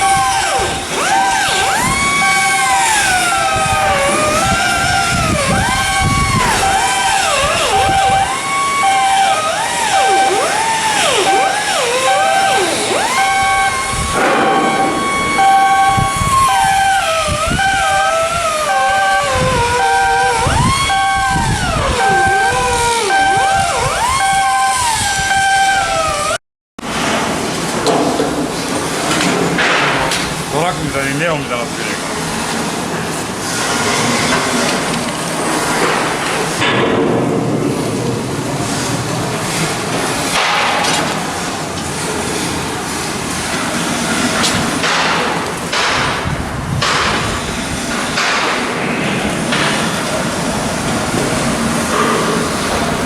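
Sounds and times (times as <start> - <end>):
machine whine sliding in pitch: 0.0 - 26.4
warning beeper: 0.0 - 26.4
harsh noise bursts: 0.0 - 27.6
industrial din: 0.0 - 53.0.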